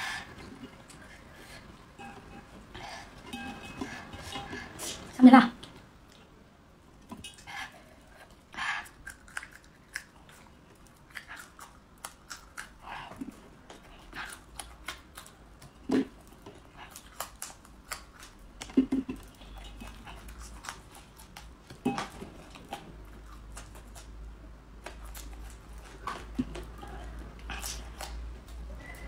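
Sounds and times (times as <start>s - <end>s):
chili peppers being chewed: 0.0s - 6.3s, 7.0s - 29.0s.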